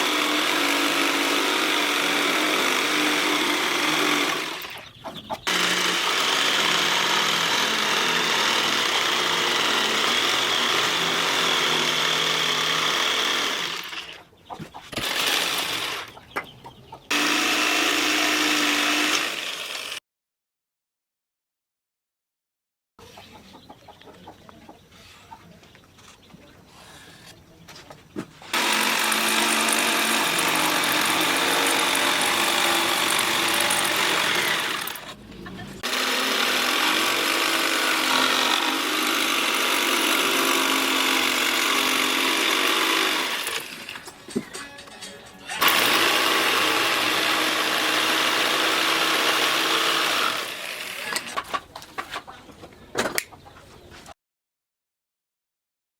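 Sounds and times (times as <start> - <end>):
electric power tool running: 0.0 - 4.8, 5.5 - 14.2, 14.9 - 16.2, 17.1 - 20.0, 28.5 - 35.2, 35.8 - 44.1, 45.6 - 51.3.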